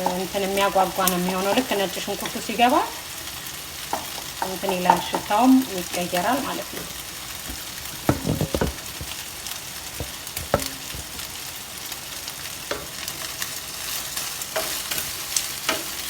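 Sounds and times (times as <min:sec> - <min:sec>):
food sizzling in a pan: 0:00.0 - 0:16.0
utensil knocking against pan: 0:03.9 - 0:05.4, 0:07.5 - 0:09.3, 0:10.0 - 0:11.4.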